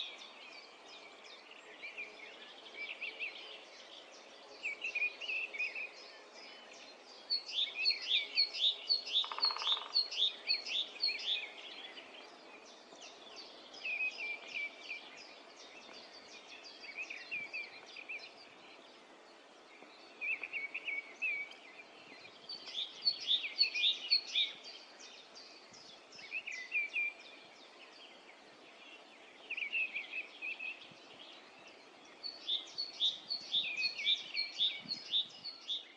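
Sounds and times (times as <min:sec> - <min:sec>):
songbirds singing: 0:00.0 - 0:35.9.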